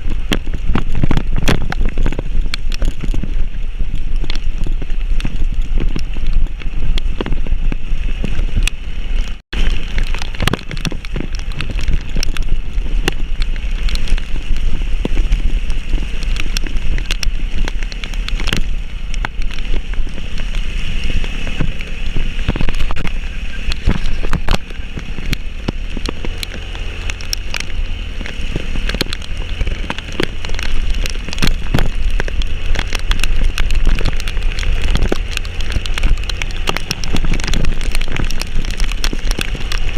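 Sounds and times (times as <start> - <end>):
heavy rain: 0.0 - 39.9
raindrops tapping close by: 0.0 - 39.9
wind buffeting microphone: 0.0 - 39.9.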